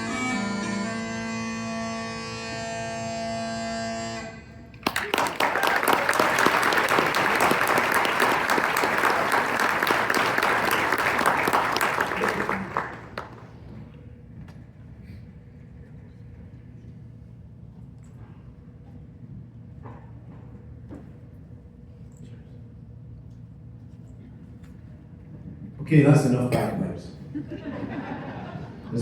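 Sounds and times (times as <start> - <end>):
smallpipes with drones: 0.0 - 4.7
audience applauding: 4.8 - 13.6.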